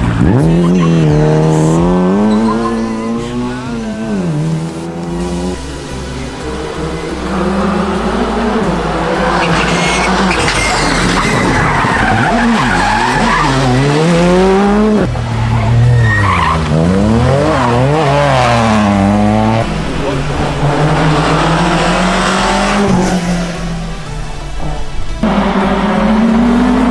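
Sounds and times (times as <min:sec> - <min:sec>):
rally car engine revving: 0:00.0 - 0:26.9
tyres squealing and skidding: 0:00.2 - 0:03.7, 0:08.9 - 0:14.5, 0:15.2 - 0:19.0.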